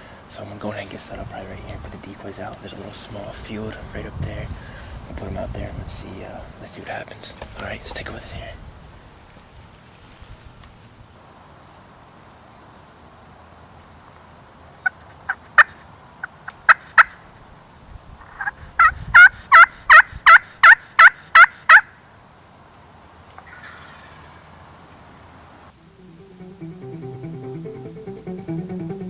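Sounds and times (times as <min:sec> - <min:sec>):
turkey call clucks: 0:18.4 - 0:21.9
turkey call hen yelps: 0:18.4 - 0:21.9, 0:23.4 - 0:24.4.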